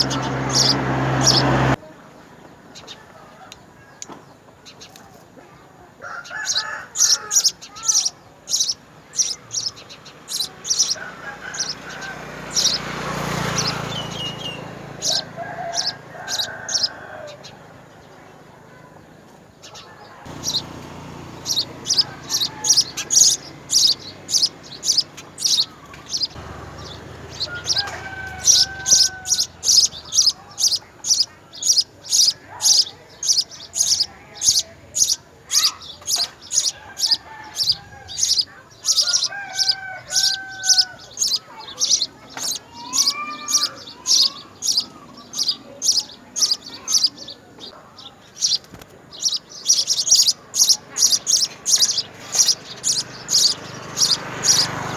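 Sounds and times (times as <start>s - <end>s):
birds sliding whistled calls: 0.0s - 1.6s, 21.4s - 47.1s, 49.2s - 54.7s
small bird chirping: 6.4s - 18.2s, 19.6s - 54.7s.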